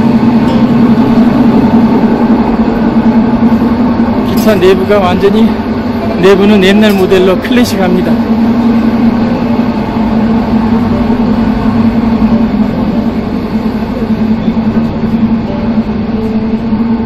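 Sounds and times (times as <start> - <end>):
constant low drone: 0.0 - 17.0
train rumble inside carriage: 0.0 - 17.0.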